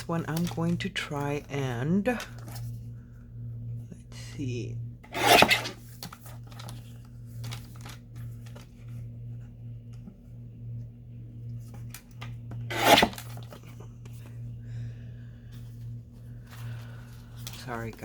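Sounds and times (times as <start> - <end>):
low hum: 0.0 - 18.0
paper rustling: 5.4 - 8.8.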